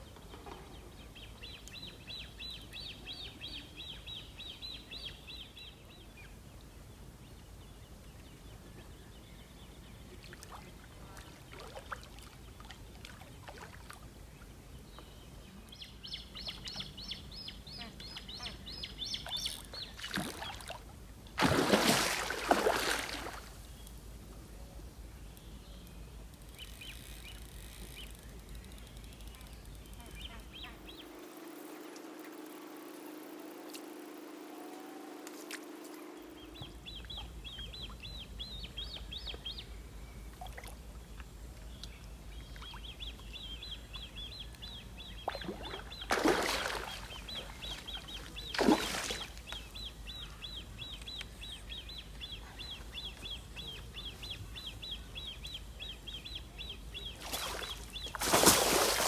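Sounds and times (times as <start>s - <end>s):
small bird chirping: 15.0s - 20.7s.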